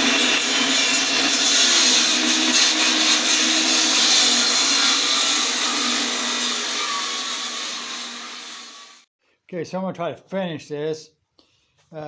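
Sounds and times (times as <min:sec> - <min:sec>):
electric saw cutting log: 0:00.0 - 0:09.1.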